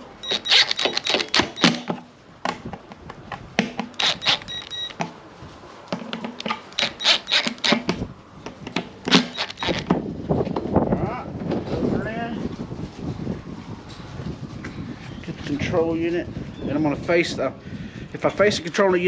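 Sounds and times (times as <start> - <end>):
short high squeak: 0.2 - 1.8, 4.0 - 5.0, 6.4 - 7.8, 9.1 - 9.9
metal screws clicking and rattling: 0.2 - 1.9, 3.9 - 5.0, 6.4 - 7.9, 9.1 - 9.9.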